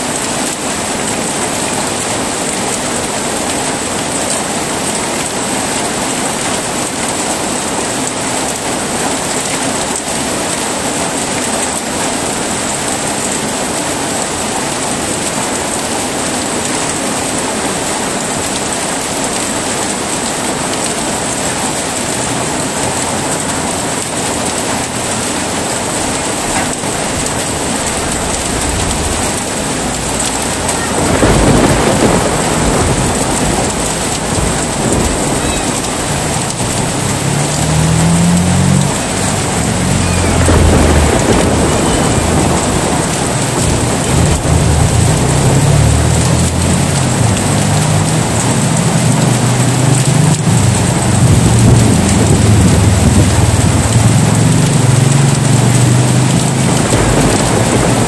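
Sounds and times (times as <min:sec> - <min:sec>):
heavy rain: 0:00.0 - 0:58.0
rolling thunder: 0:24.9 - 0:58.0.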